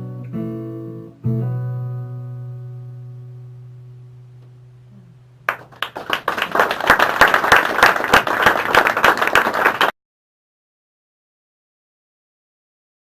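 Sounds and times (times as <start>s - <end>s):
audience applause: 5.5s - 9.9s.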